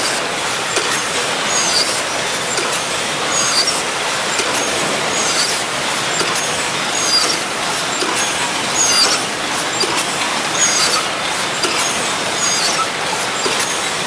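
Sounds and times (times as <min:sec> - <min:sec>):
packaging machine running: 0:00.0 - 0:14.0
brief high squeak: 0:06.2 - 0:07.4, 0:08.8 - 0:10.0, 0:10.6 - 0:13.9.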